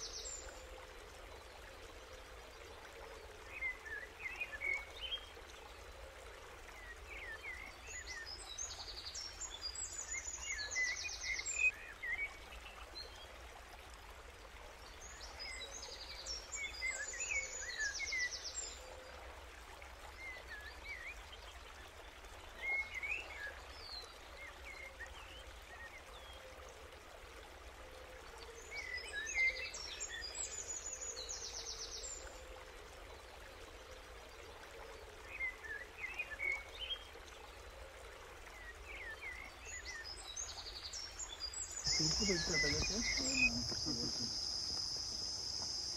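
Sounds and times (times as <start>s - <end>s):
outdoor background noise: 0.0s - 45.9s
songbird singing: 38.6s - 45.9s.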